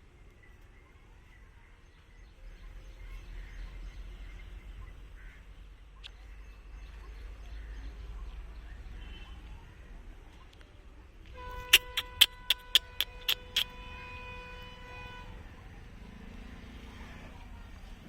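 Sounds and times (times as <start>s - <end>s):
faint bird calls: 2.9s - 10.6s, 11.5s - 14.0s.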